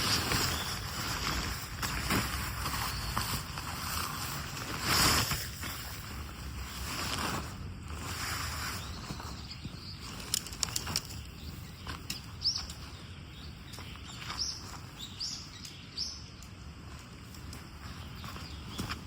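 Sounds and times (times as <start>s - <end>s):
small bird chirping: 0.0s - 4.5s, 8.1s - 16.6s, 17.4s - 19.0s.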